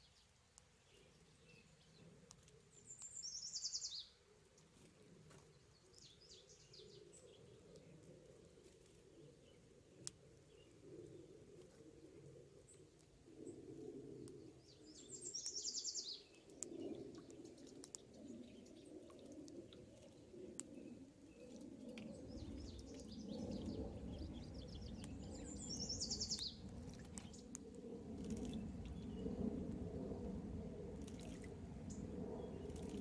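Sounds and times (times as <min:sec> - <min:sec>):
faint clicks: 0:16.3 - 0:18.3
low background rumble: 0:22.1 - 0:33.0.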